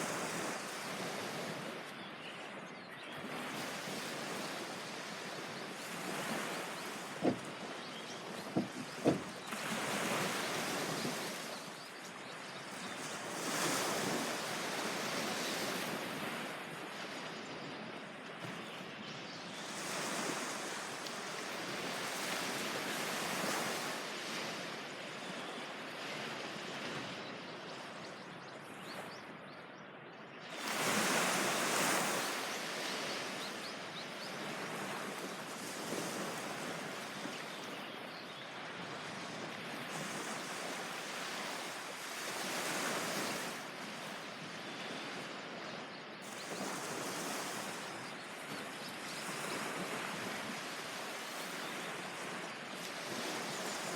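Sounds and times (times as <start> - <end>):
surf breaking on beach: 6.2 - 11.5.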